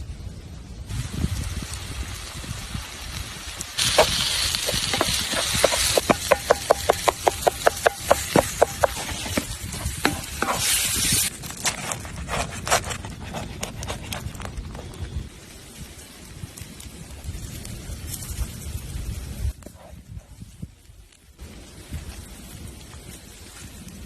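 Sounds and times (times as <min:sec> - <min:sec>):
food sizzling in a pan: 0:00.9 - 0:11.3.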